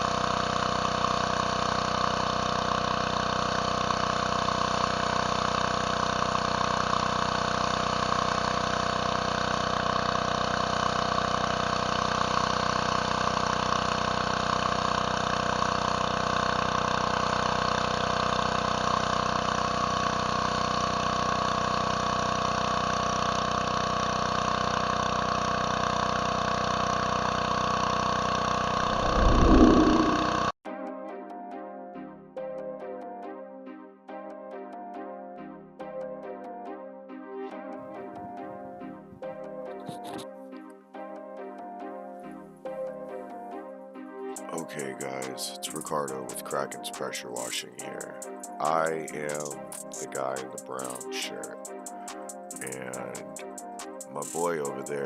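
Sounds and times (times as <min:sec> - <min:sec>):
pressure washer engine running: 0:00.0 - 0:30.4, 0:51.8 - 0:54.9.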